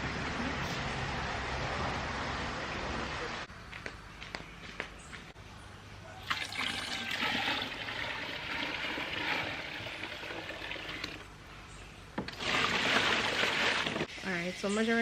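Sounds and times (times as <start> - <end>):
water pouring into a basin: 6.2 - 11.3, 12.3 - 14.1.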